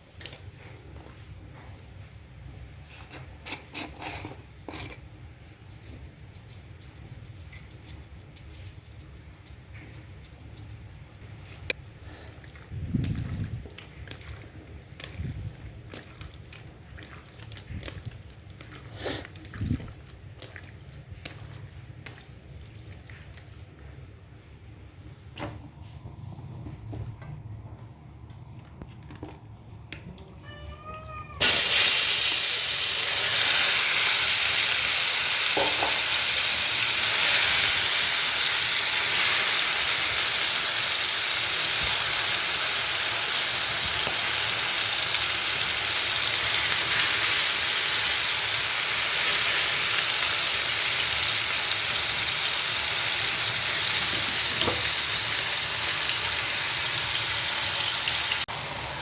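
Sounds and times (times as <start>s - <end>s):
chicken sizzling in a hot pan: 31.4s - 59.0s.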